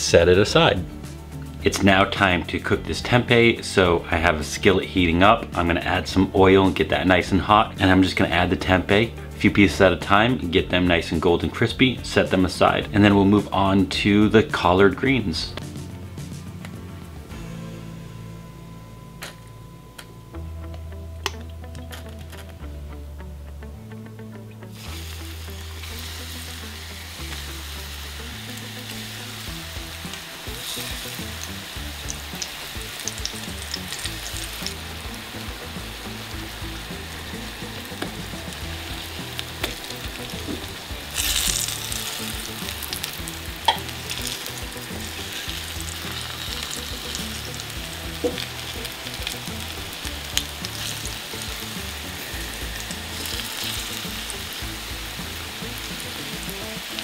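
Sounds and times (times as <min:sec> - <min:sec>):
food sizzling in hot oil: 0:24.6 - 0:57.0.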